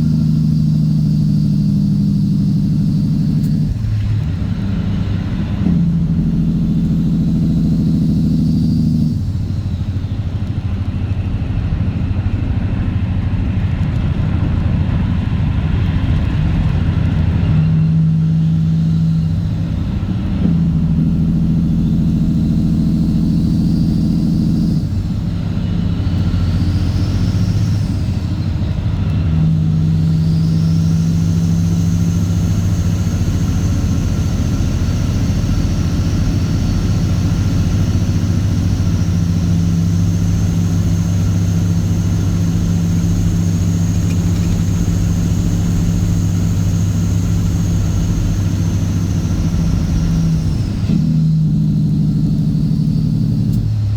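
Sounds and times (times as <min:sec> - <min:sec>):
truck diesel engine running: 0:00.0 - 0:53.9.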